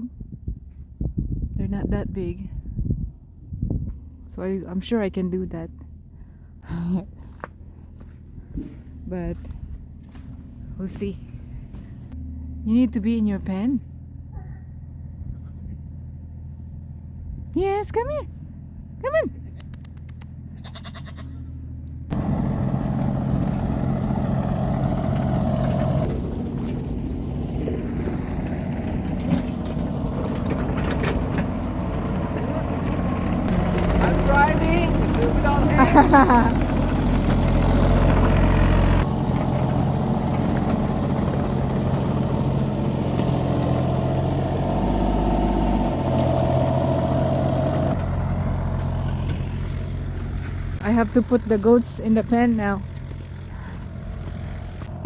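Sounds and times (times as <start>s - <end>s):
low engine hum: 0.0s - 55.0s
goat bleating: 15.3s - 15.8s, 20.5s - 21.7s
loud engine: 22.1s - 55.0s.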